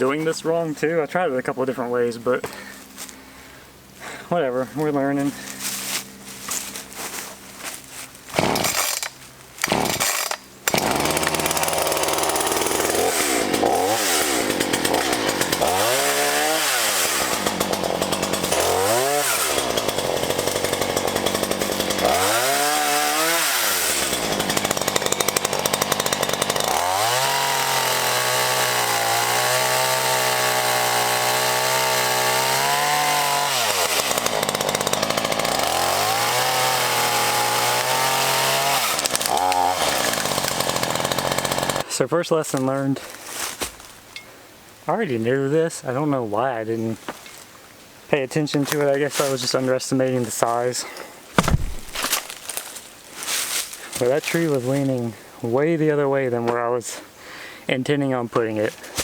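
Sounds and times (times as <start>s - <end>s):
chainsaw cutting tree trunk: 5.4s - 41.9s, 48.5s - 55.0s, 58.4s - 59.0s
chainsaw revving: 5.4s - 41.9s, 51.4s - 55.1s.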